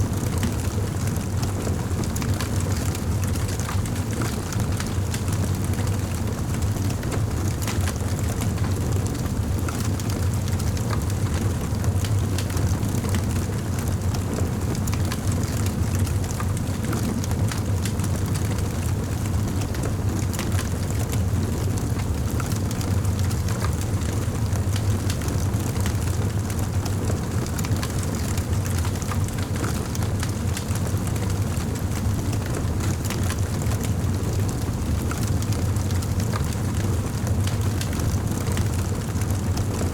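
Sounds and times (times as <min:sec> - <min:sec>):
low rumble of burning fire: 0:00.0 - 0:39.9
wood fire crackling and popping: 0:37.5 - 0:39.8.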